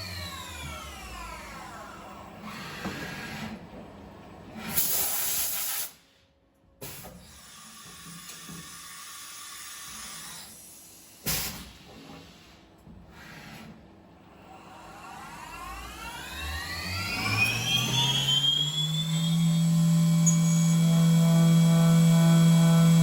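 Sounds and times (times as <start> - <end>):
low shop noise: 0.0 - 23.0.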